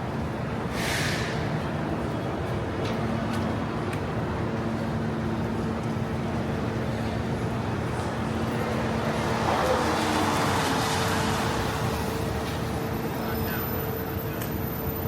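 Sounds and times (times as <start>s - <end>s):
traffic rumble: 0.0s - 15.0s
vehicle passing: 8.5s - 12.7s.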